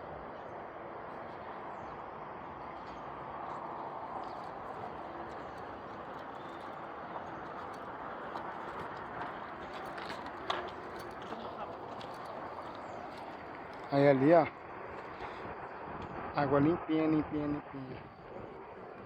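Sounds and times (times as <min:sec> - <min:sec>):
stream water rushing: 0:00.0 - 0:13.9.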